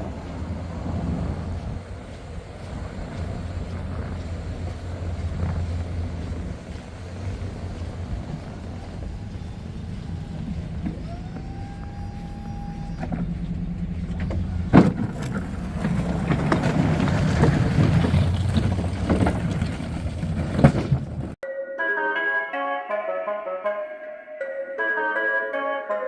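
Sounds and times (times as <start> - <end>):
machine whine: 0.0 - 15.8
snow plow engine running: 0.0 - 21.4
music: 21.4 - 26.0.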